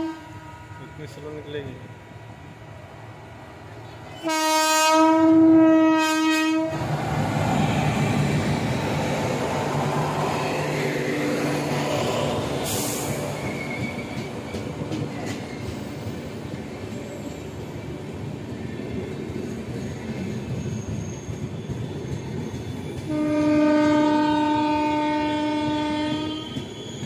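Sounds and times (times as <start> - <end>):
locomotive horn blast: 0.0 - 1.3, 4.2 - 6.8, 23.1 - 26.6
train wheels rumbling on rail: 0.0 - 27.0.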